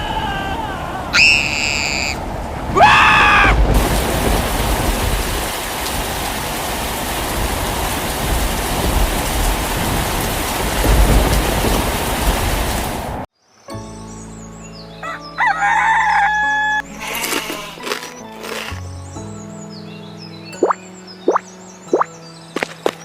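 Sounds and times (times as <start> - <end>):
heavy rain falling: 0.0 - 13.3
thunder rumbling: 0.8 - 13.3.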